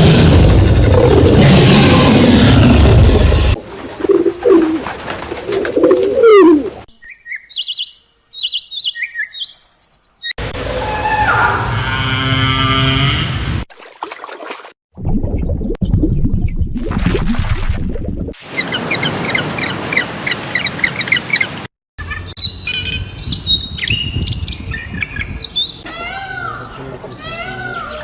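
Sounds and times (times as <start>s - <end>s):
loud noisy animal sound: 0.0s - 3.6s
low gliding animal calls: 5.9s - 6.8s
pitched animal call: 6.1s - 6.8s
short high bird chirps: 7.0s - 10.3s.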